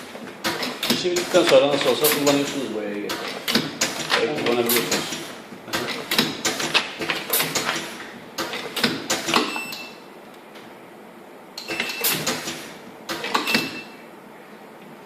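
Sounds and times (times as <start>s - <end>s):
printing machine clacking: 0.4s - 9.7s.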